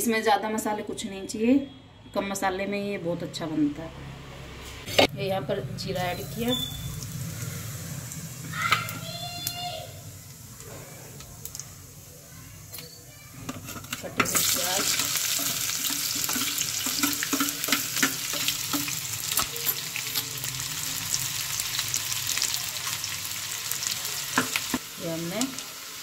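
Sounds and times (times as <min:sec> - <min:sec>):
seeds crackling in hot oil: 0:06.0 - 0:26.0.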